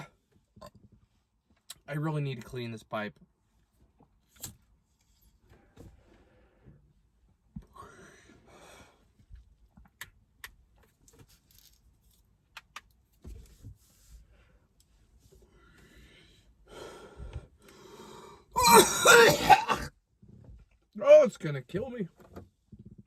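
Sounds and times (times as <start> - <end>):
person coughing: 18.6 - 19.9.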